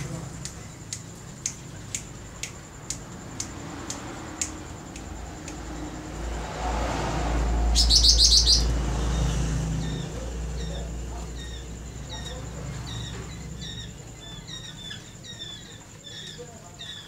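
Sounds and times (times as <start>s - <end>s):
bird chirping: 7.4s - 17.0s
bird trill: 7.6s - 17.0s.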